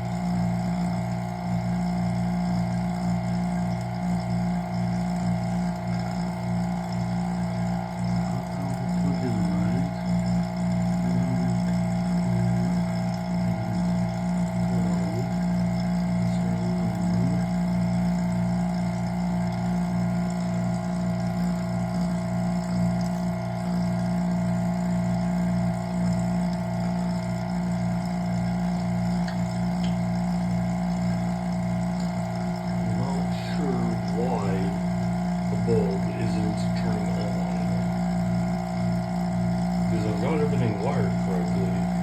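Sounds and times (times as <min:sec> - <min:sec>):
vacuum pump humming and throbbing: 0:00.0 - 0:42.0.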